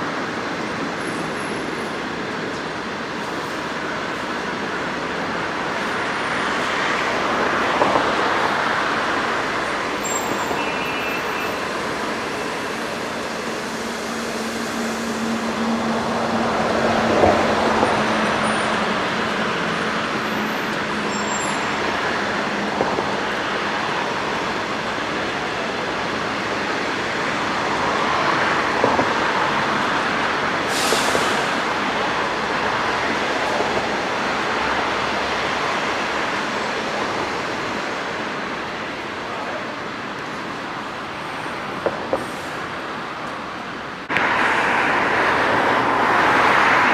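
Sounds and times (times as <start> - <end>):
train rolling past: 0.0 - 46.9
short hiss: 30.7 - 31.6.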